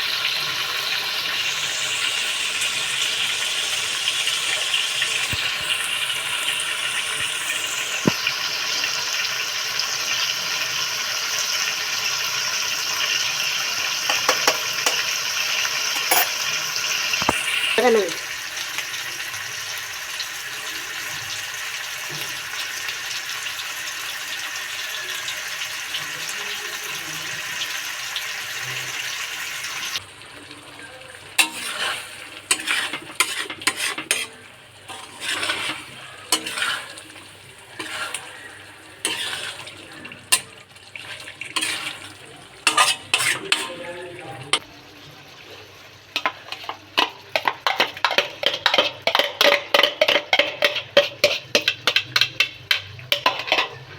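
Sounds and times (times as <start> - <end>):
food sizzling in a pan: 0.0 - 53.9
metal spatula scraping pan: 14.1 - 15.2, 16.0 - 16.4, 31.4 - 44.6, 46.2 - 53.9.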